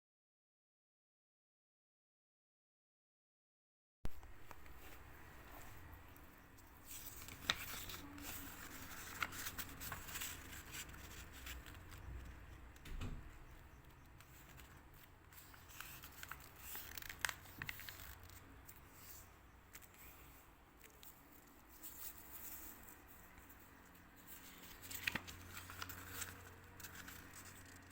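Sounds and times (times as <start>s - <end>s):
paper rustling and crinkling: 4.4s - 12.4s, 13.9s - 27.9s.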